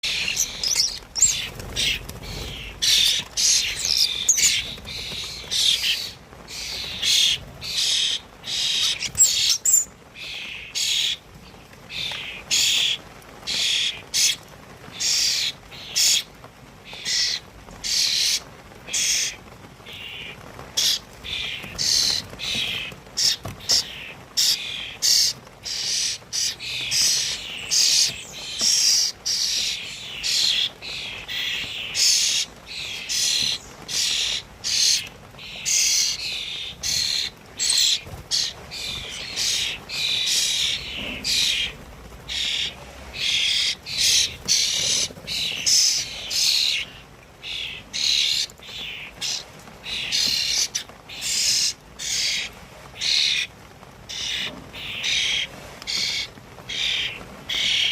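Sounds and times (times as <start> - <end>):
songbirds chirping and twittering: 0.0 - 57.9.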